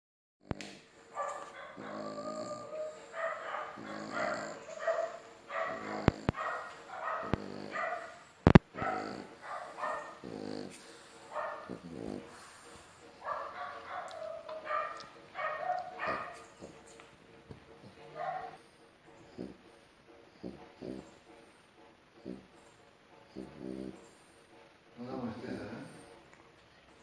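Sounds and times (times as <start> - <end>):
dogs barking: 1.0 - 17.1, 17.8 - 19.6, 20.4 - 21.3, 22.2 - 24.3.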